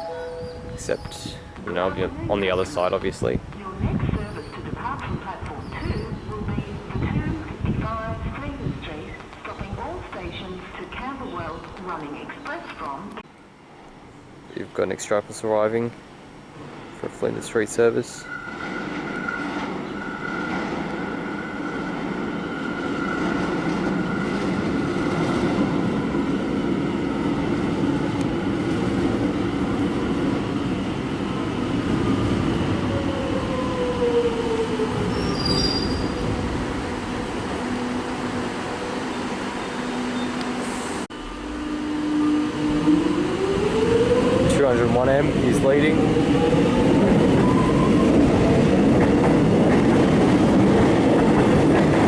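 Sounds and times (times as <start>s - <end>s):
train rumble: 0.0s - 13.2s, 14.5s - 52.0s
train wheels squealing: 18.2s - 20.6s, 35.0s - 36.2s.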